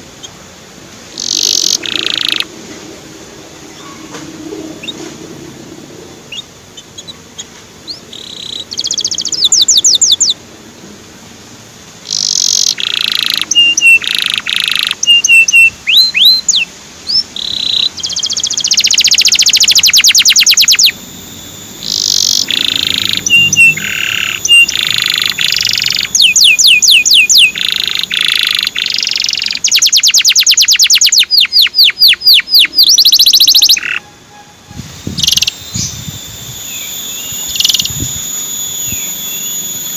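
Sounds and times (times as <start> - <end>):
canary singing: 0.0 - 0.5, 1.1 - 2.6, 3.6 - 5.2, 5.8 - 10.4, 12.0 - 39.9.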